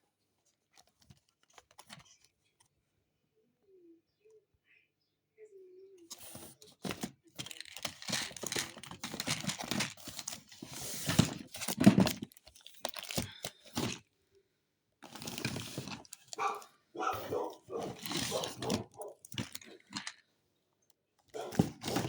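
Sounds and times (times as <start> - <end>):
rustling and crinkling handling: 0.0 - 2.9, 6.0 - 14.1, 15.0 - 20.3, 20.9 - 22.0.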